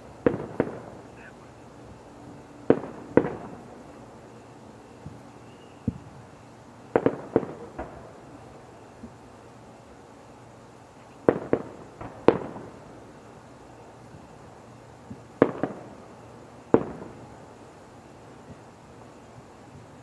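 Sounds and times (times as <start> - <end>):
firework shells bursting: 2.6 - 4.0.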